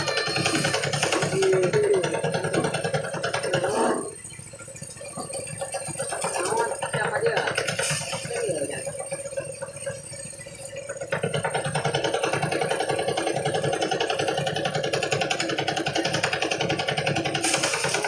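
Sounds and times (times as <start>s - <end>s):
harvest thresher engine pulsing: 0.0s - 4.4s, 11.1s - 18.0s.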